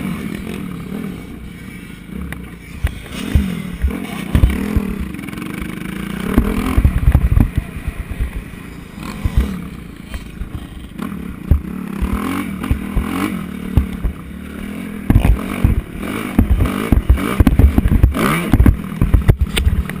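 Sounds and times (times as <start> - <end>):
motocross bike engine revving: 0.0 - 20.0
low thumps and rattles: 2.8 - 8.5, 9.1 - 14.3, 15.0 - 20.0.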